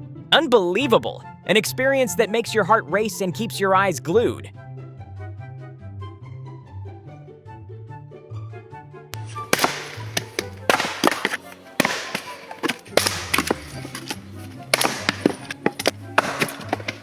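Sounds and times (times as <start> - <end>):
sharp knocks and bangs: 9.2 - 17.0.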